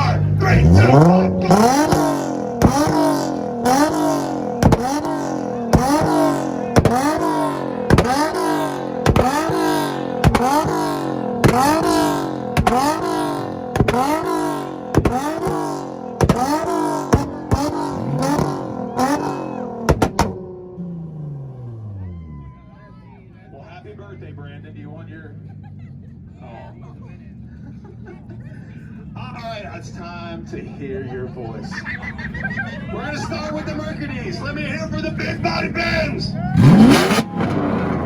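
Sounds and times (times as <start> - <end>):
exhaust pops: 0.0 - 22.2, 34.7 - 38.0
car engine revving: 0.0 - 38.0.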